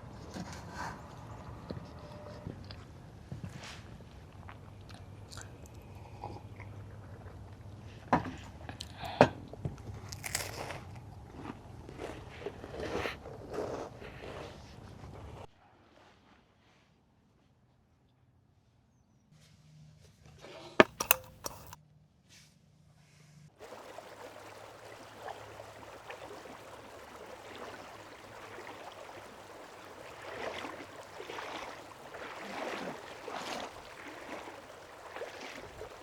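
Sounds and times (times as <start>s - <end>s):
flowing river water: 20.8s - 21.8s, 23.6s - 36.0s.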